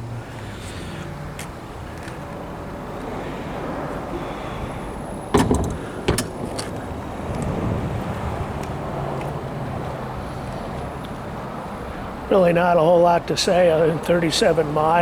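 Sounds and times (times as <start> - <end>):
sharp clunks: 5.3 - 6.9.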